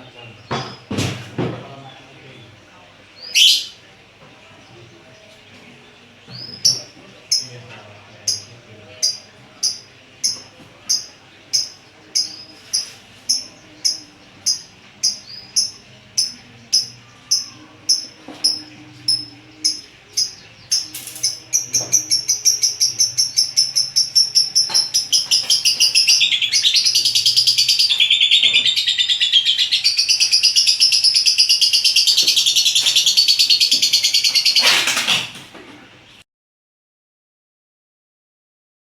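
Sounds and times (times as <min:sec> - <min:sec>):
lovebird chirping: 0:03.2 - 0:03.8, 0:08.2 - 0:34.8.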